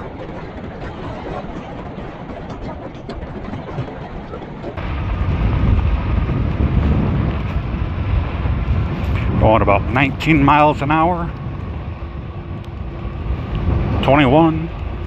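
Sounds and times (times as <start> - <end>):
tyres rolling on dirt road: 4.8 - 15.0
wind rushing over mic: 4.8 - 15.0.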